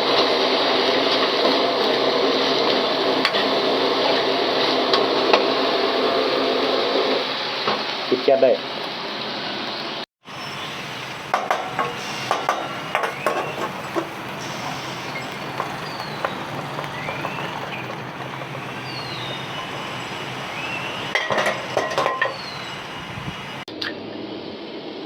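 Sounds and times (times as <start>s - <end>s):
hot pan hissing: 0.0s - 23.7s
metal spatula scraping wok: 10.4s - 22.8s.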